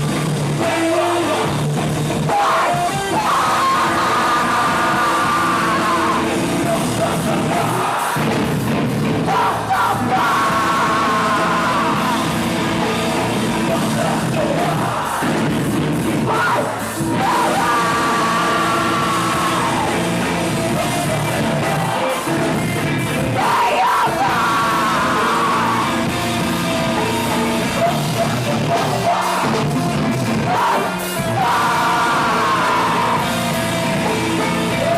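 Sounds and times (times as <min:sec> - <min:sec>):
rock band playing: 0:00.0 - 0:34.9
vocalist yelling: 0:16.2 - 0:20.1, 0:23.4 - 0:26.1, 0:30.4 - 0:33.4.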